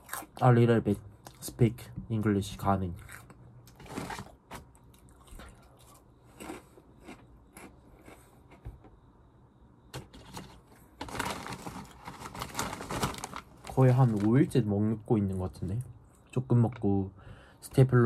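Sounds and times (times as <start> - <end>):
chewing crunchy snacks: 0.0 - 0.5, 2.9 - 8.6
foil snack bag rustling: 3.8 - 4.3, 10.2 - 14.6.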